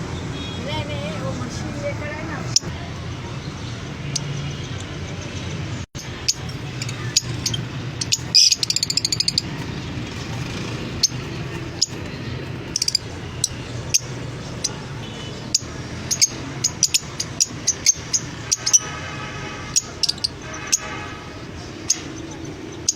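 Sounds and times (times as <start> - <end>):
cage birds chirping: 0.0 - 22.9
bird trill: 6.0 - 19.0.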